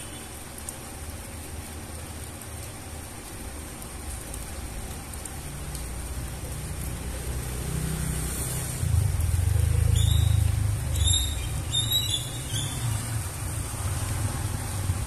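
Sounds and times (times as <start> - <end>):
rain falling on concrete: 0.0 - 15.0
vehicle engine rumble: 5.2 - 15.0.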